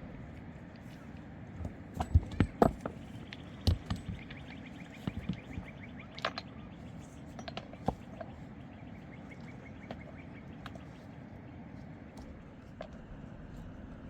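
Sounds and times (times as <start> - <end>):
low background rumble: 0.0 - 14.0
sharp knocks and clicks: 1.6 - 6.5.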